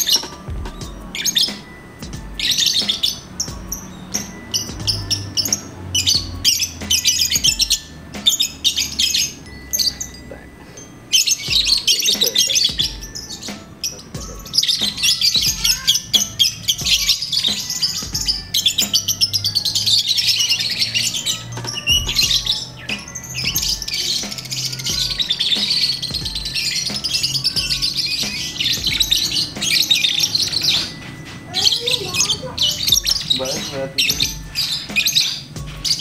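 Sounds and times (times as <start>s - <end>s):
lovebird chattering trills: 0.0s - 36.0s.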